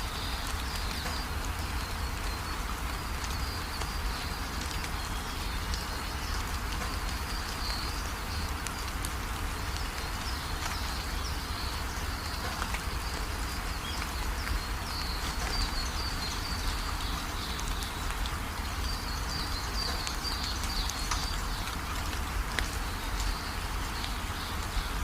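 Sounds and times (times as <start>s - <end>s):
steady rain: 0.0s - 25.0s.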